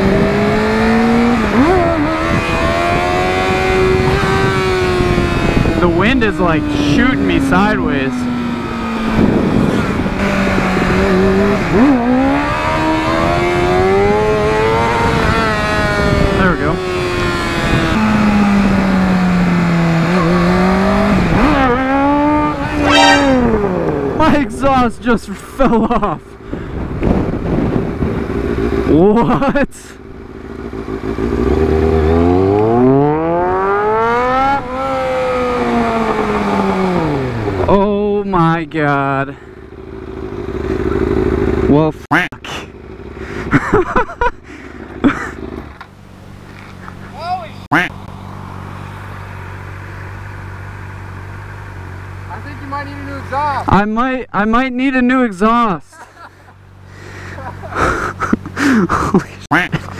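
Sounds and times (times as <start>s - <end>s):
wind rushing over microphone: 0.0s - 25.1s, 26.4s - 28.9s
motorcycle engine accelerating: 0.0s - 38.2s, 38.9s - 41.8s, 42.7s - 53.7s.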